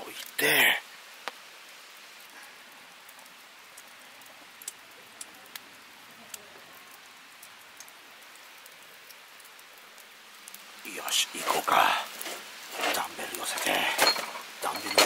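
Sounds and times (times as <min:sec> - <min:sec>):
soft ambient hiss: 0:00.0 - 0:15.0.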